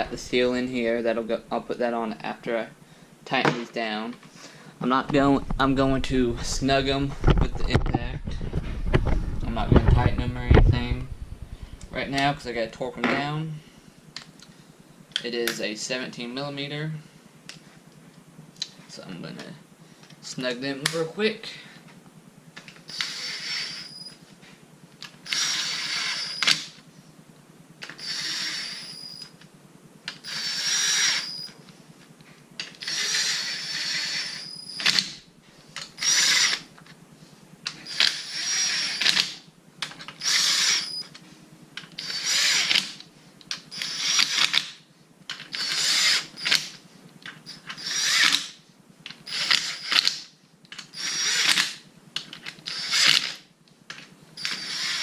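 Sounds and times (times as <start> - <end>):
impact wrench whining: 4.4 - 13.3, 22.6 - 24.2, 25.0 - 26.8, 27.8 - 29.4, 30.1 - 31.6, 32.6 - 36.7, 37.6 - 41.2, 41.8 - 55.0.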